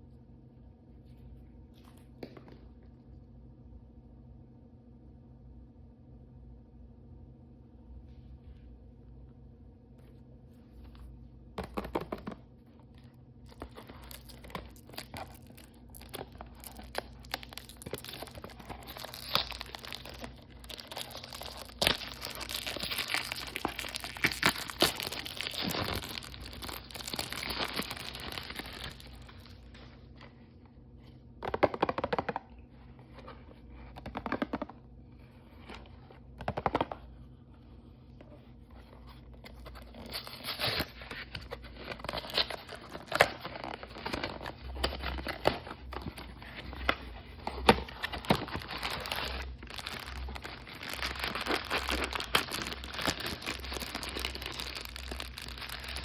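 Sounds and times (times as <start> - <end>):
packaging crinkling: 13.4 - 30.4, 39.0 - 56.0
plastic packaging tearing: 13.5 - 29.8, 39.5 - 56.0.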